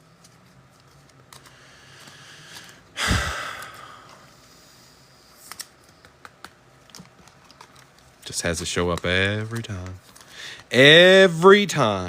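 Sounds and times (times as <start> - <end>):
heavy exasperated sigh: 2.2 - 4.3.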